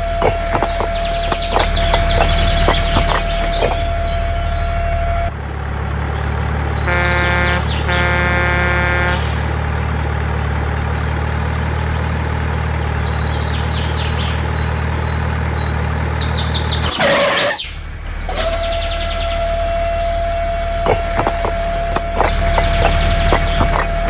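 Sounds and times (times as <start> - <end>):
bird-like chirps: 0.0 - 5.3, 6.0 - 8.2, 9.8 - 20.2, 20.8 - 24.0
steady whine: 0.0 - 10.7, 16.8 - 24.0
noisy burst: 0.0 - 12.4, 16.7 - 24.0
low engine drone: 0.0 - 24.0.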